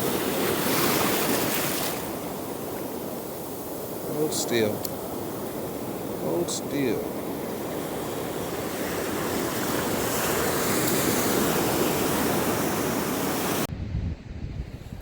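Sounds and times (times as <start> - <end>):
ocean surf washing on beach: 0.0 - 13.7
gusty wind on microphone: 7.0 - 15.0.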